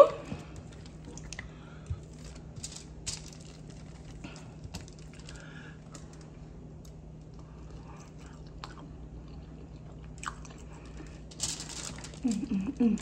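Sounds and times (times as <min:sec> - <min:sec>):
person chewing wet food: 0:00.4 - 0:02.6, 0:07.2 - 0:11.3.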